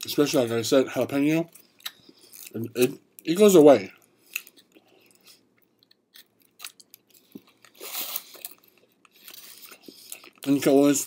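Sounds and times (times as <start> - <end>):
person chewing crusty bread: 4.2 - 10.5.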